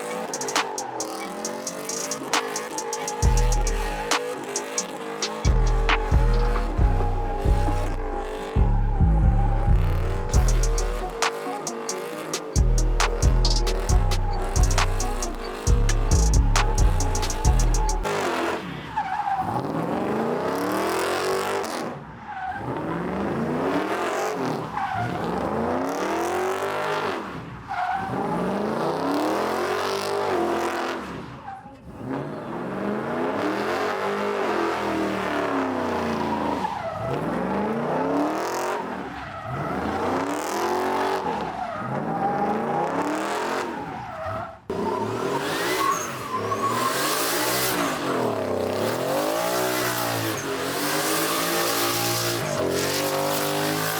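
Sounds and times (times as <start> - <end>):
truck engine revving: 0.0 - 18.4
tires squealing: 0.0 - 53.9.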